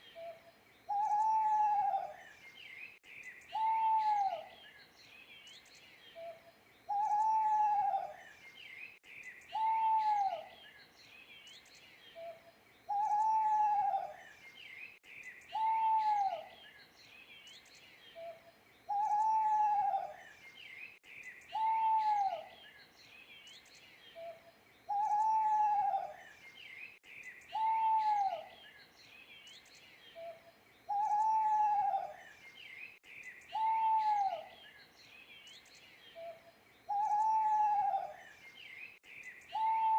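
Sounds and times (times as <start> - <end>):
birds chirping: 0.0 - 39.9
owl hooting: 0.2 - 2.2, 3.5 - 4.5, 6.9 - 8.2, 9.5 - 10.5, 12.2 - 14.2, 15.5 - 16.5, 18.2 - 20.2, 21.5 - 22.5, 24.2 - 26.2, 27.5 - 28.5, 30.2 - 32.2, 33.5 - 34.6, 36.2 - 38.2, 39.5 - 39.9.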